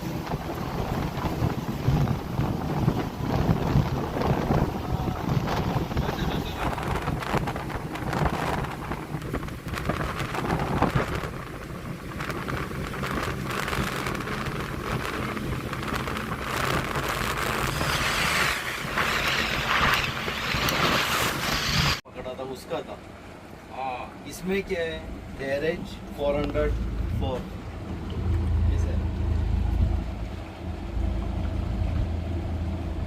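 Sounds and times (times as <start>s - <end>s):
boat engine drone: 0.0s - 22.0s, 22.9s - 33.0s
wind buffeting microphone: 0.0s - 22.0s
rushing water: 0.0s - 33.0s.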